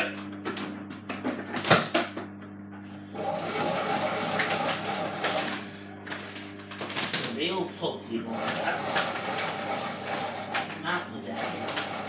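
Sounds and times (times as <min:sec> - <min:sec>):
washing machine humming: 0:00.0 - 0:12.0
washing machine click: 0:08.4 - 0:12.0.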